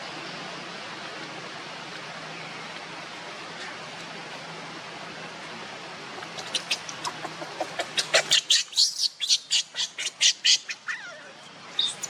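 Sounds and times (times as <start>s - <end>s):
animal high-pitched calls: 6.4s - 12.0s.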